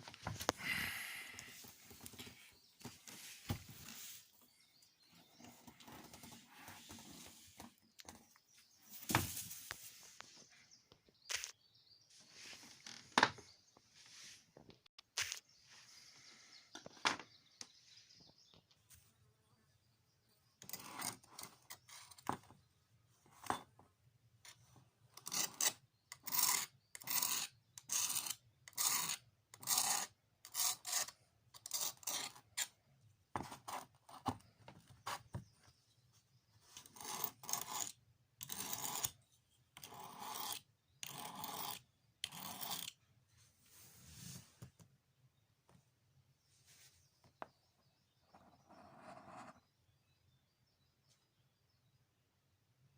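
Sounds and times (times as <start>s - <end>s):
hand tool rasping on board: 25.2s - 32.4s.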